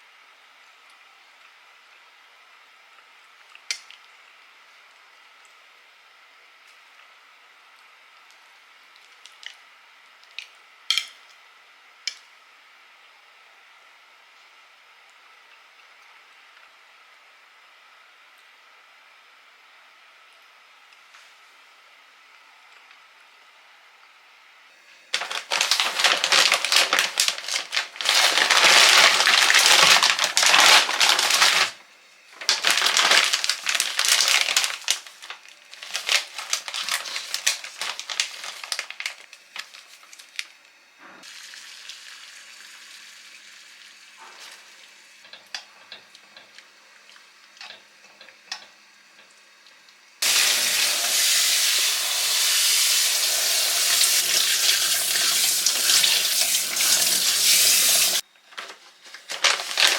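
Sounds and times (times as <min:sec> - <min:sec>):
kitchen tap running: 0:25.2 - 0:31.8, 0:32.4 - 0:39.1, 0:50.2 - 0:58.2
loud crackling: 0:25.2 - 0:31.8.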